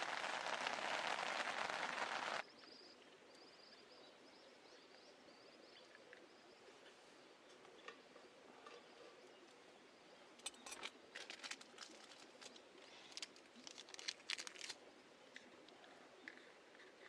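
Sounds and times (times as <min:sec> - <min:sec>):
faint crackles and clicks: 0:00.0 - 0:03.4, 0:10.4 - 0:17.0.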